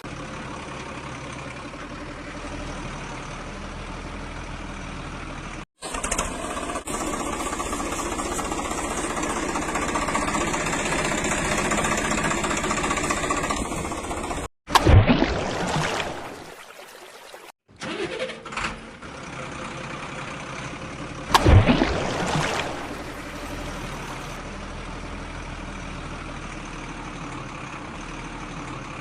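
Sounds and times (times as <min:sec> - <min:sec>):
vehicle engine running: 0:00.0 - 0:14.5, 0:22.0 - 0:29.0.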